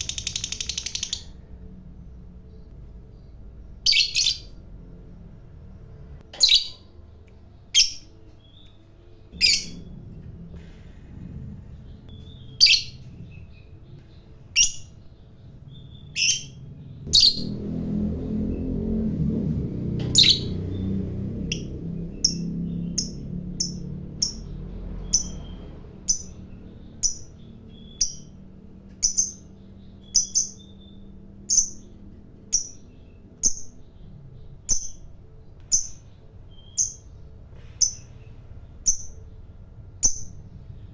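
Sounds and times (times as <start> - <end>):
bird high chirps: 0.0 - 4.9, 6.3 - 7.0, 7.7 - 9.9, 12.1 - 17.6, 20.0 - 40.9
low rumble: 0.0 - 27.8.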